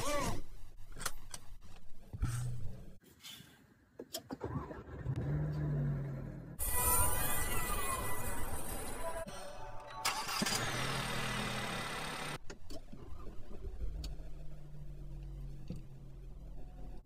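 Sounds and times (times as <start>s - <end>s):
car engine starting and idling: 4.2s - 6.6s, 10.0s - 17.0s.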